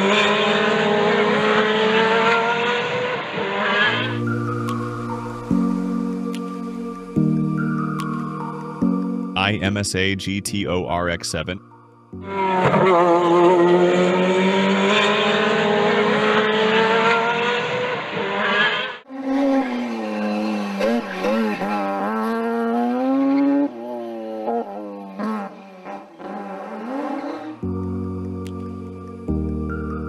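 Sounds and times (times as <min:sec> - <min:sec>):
race car engine at high revs: 0:00.0 - 0:06.5, 0:12.2 - 0:27.7.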